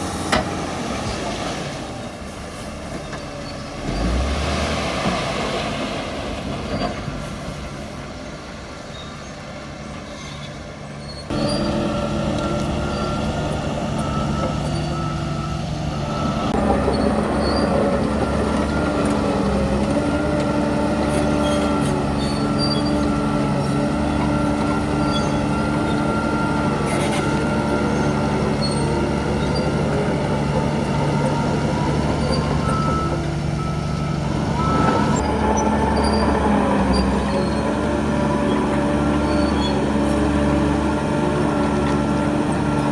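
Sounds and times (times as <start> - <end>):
heavy diesel machinery running: 9.6 - 42.9.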